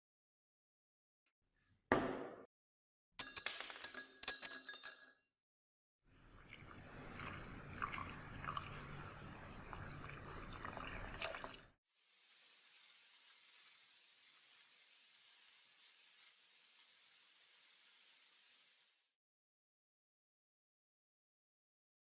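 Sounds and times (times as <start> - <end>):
rough hissing noise: 12.0 - 19.2.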